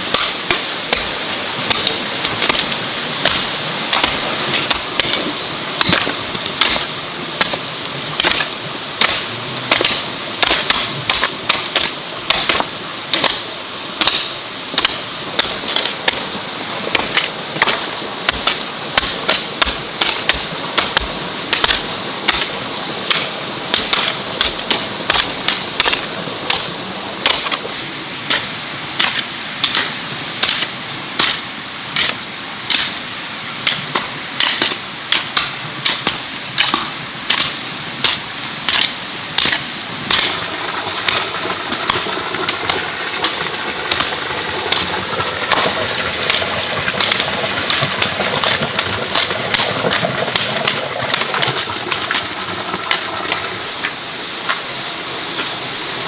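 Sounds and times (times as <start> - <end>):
steady background hiss: 0.0 - 56.0
hand tool striking: 0.1 - 7.6, 8.2 - 13.4, 14.0 - 16.2, 16.9 - 22.5, 23.1 - 27.6, 29.0 - 31.4, 34.4 - 40.4, 41.0 - 52.2.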